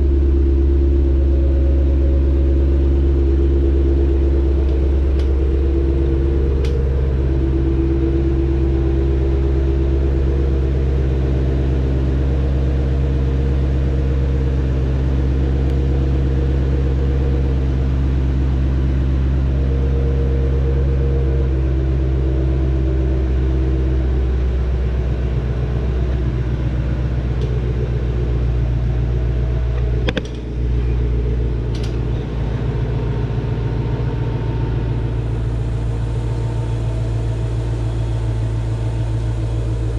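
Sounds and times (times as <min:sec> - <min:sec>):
car engine idling: 0:00.0 - 0:39.9
click: 0:31.7 - 0:32.0.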